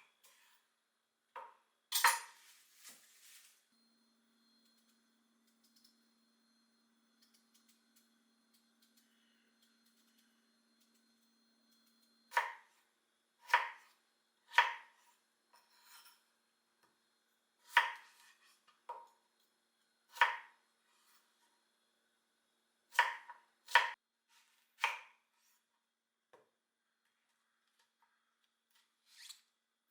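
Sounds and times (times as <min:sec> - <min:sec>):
knife chopping on cutting board: 0:22.9 - 0:23.9.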